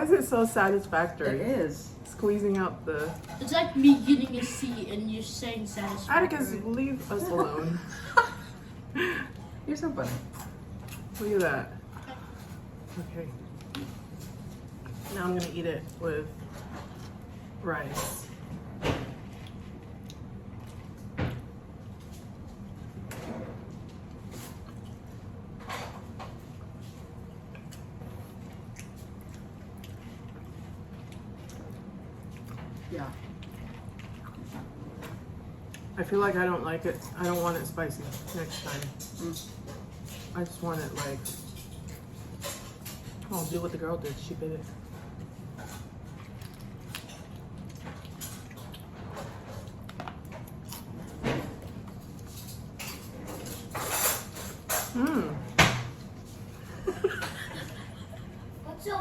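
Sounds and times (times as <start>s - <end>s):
steady low hum: 0.0s - 59.0s
wet squishing and chewing: 27.2s - 36.0s, 45.0s - 52.3s.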